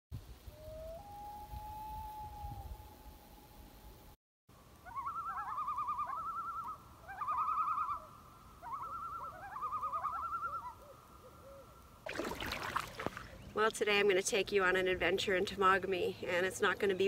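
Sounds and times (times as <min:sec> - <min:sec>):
bird trilling call: 0:04.9 - 0:11.6.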